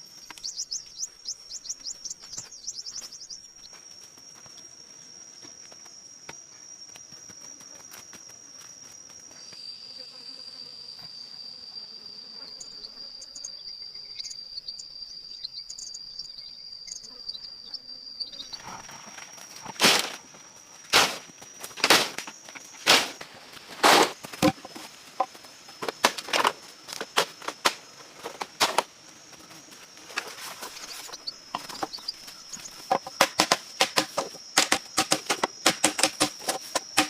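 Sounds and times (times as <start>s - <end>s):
insect trilling: 0.0s - 37.0s
sharp strikes of chopping wood: 19.7s - 20.2s, 20.9s - 28.9s, 32.9s - 37.0s.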